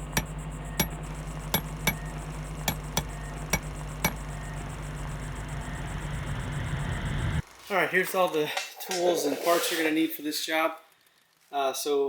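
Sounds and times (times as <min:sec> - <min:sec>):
steady low hum: 0:00.0 - 0:07.4
sharp metallic clinks: 0:01.6 - 0:02.1, 0:02.7 - 0:04.2.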